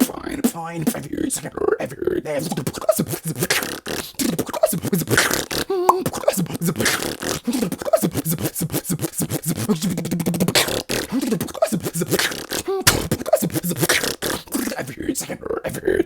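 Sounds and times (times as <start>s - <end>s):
person beatboxing: 2.4s - 10.8s.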